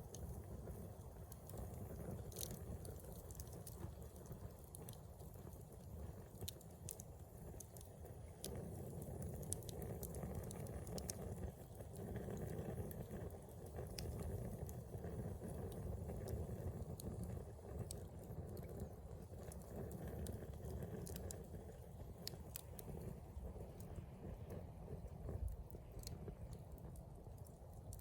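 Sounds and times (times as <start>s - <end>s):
campfire crackling and popping: 0.0s - 28.0s
low steady rumble: 8.2s - 28.0s.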